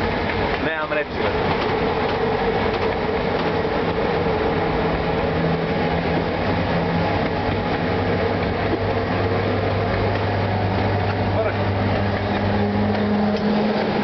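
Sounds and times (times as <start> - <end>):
constant hum: 0.0 - 14.0
train rumbling through tunnel: 0.0 - 14.0.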